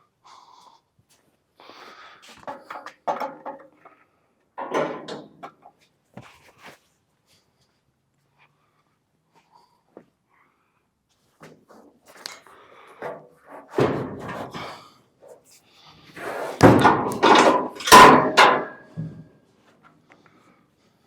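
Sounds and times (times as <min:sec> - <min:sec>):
heavy thuds of steel truck cab: 0:16.6 - 0:19.2.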